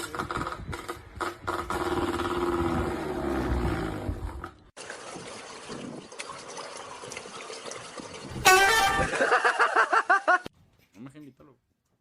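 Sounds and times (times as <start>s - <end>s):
water trickling: 4.8s - 9.0s.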